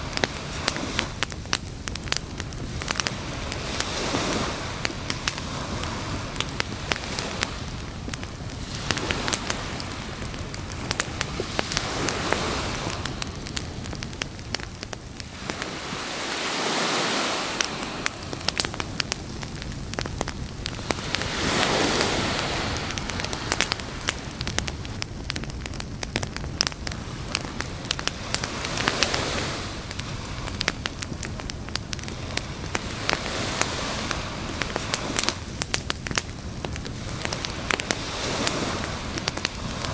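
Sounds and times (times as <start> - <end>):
campfire wood crackling and popping: 0.0 - 39.9
surf-like noise wash: 2.0 - 25.0, 26.9 - 35.5.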